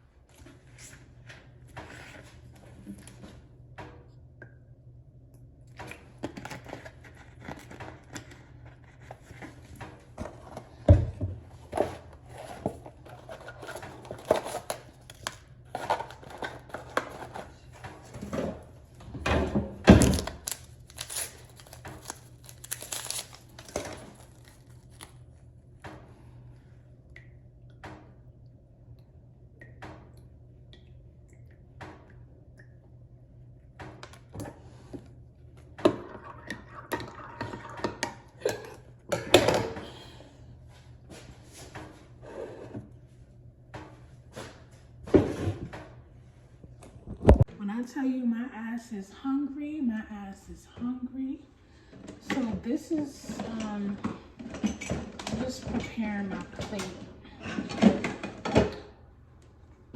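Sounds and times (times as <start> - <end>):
crinkling and rustling: 11.6 - 25.4.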